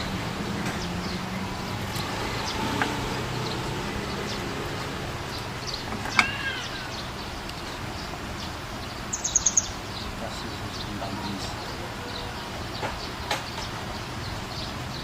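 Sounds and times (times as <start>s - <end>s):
low motor hum: 0.0s - 6.2s
small birds chirping: 0.0s - 15.0s.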